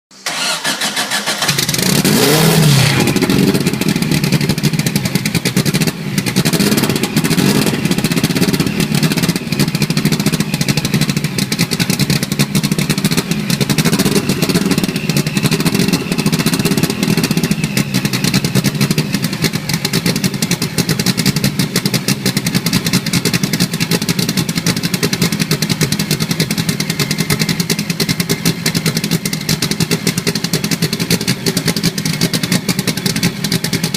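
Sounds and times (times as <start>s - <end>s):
engine cranking and starting: 0.1s - 3.3s.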